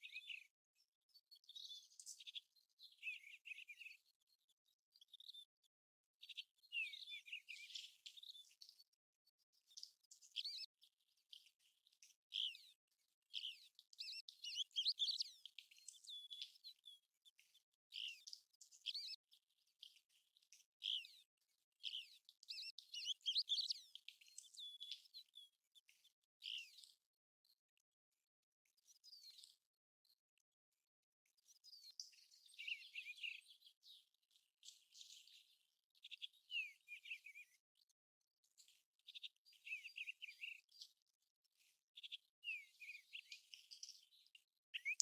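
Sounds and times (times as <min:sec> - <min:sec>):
bird whistled calls: 0:44.8 - 0:45.0.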